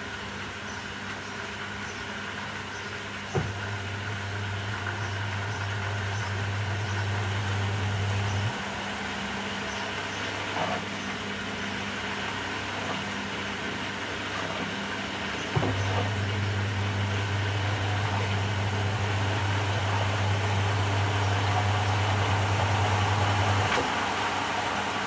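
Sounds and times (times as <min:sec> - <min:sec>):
washing machine running: 0:02.3 - 0:25.0
low electric hum: 0:03.4 - 0:13.4, 0:15.3 - 0:25.0.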